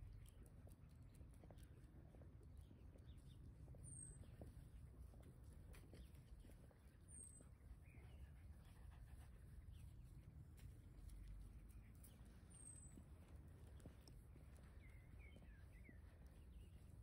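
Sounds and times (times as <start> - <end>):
soft bird chirps: 2.6 - 5.2, 5.8 - 9.0, 11.5 - 17.0.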